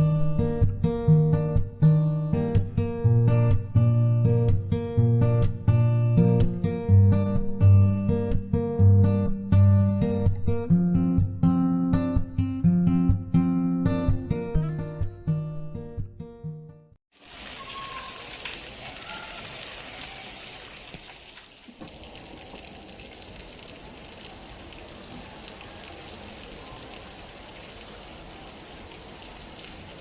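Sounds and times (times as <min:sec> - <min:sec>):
acoustic guitar music: 0:00.0 - 0:17.0
rain falling: 0:17.1 - 0:30.0.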